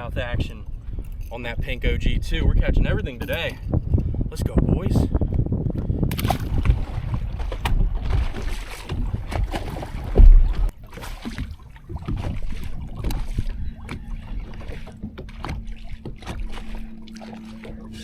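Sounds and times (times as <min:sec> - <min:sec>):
wind rumbling on microphone: 0:00.0 - 0:18.0
heavy thump: 0:10.1 - 0:10.7.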